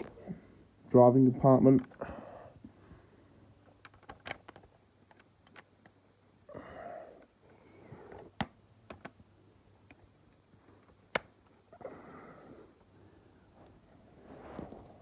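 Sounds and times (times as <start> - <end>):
plastic toy clicks and taps: 8.4 - 9.2
rustling noise: 13.5 - 15.0.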